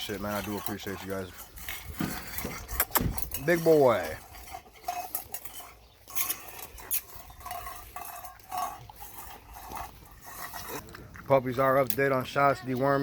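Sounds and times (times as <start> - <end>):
dog bowl clinking and scraping: 0.0 - 13.0.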